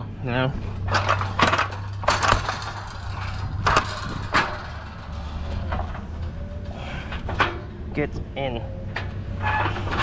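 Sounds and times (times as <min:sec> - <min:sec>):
wooden pallets knocking and scraping: 0:00.8 - 0:06.3.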